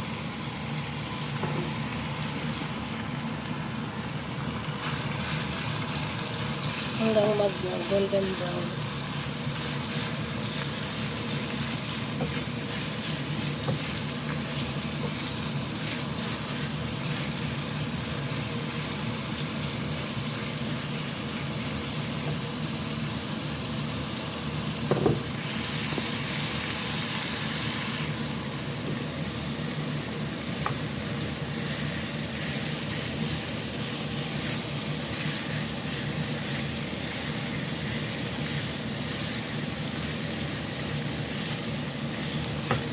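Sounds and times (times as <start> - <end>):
chicken sizzling in a pan: 0.0 - 42.9.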